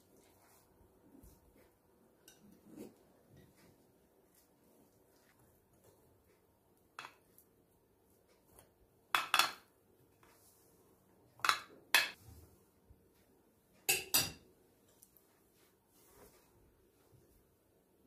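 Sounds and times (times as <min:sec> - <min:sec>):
dishes and cutlery clinking: 0:09.2 - 0:09.7, 0:13.9 - 0:14.5.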